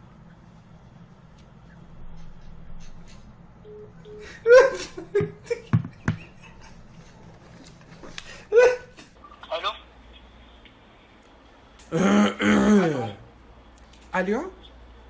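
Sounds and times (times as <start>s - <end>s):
person laughing: 4.2s - 6.9s.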